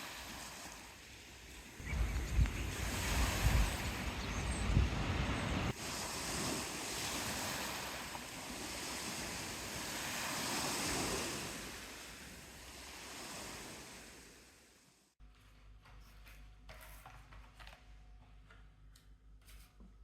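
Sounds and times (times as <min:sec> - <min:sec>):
sea waves washing ashore: 0:00.0 - 0:15.1
wind buffeting microphone: 0:01.6 - 0:07.9.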